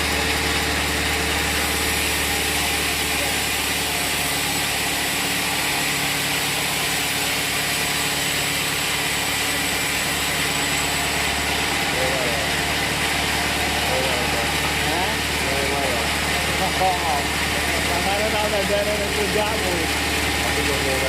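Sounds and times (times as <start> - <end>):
sawmill machinery humming: 0.0 - 21.0.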